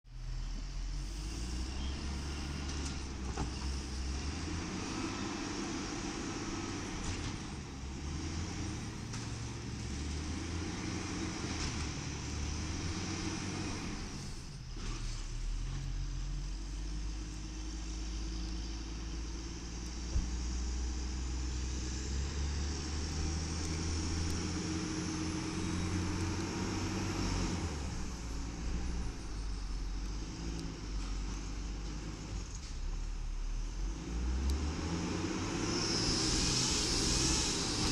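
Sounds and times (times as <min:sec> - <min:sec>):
faint whine: 0:00.1 - 0:08.0
garbage truck engine running: 0:00.1 - 0:34.0.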